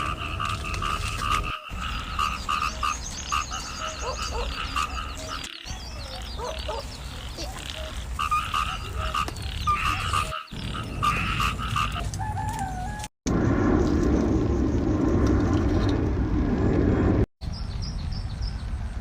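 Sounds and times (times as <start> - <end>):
frogs croaking: 0.0 - 12.2.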